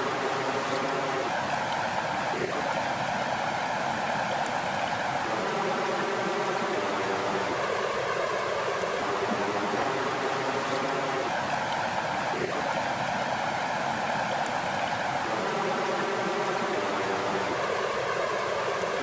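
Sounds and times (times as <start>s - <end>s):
flowing water rushing: 0.0s - 19.0s.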